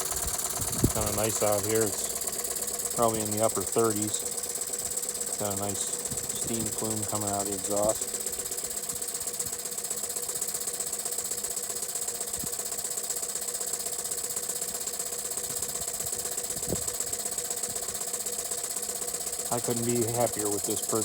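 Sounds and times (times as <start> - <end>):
exhaust puffs over hiss: 0.0 - 11.2
toy steam engine running: 0.0 - 21.0.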